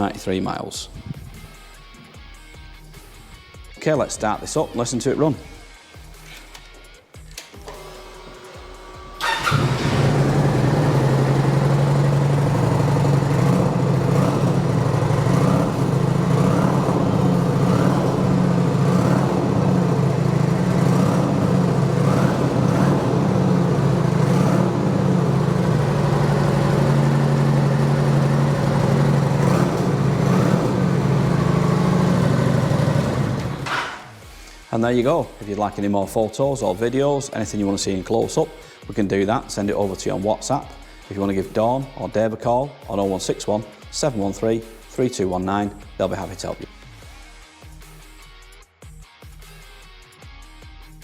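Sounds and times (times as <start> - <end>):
motorcycle engine starting and idling: 7.4 - 34.3.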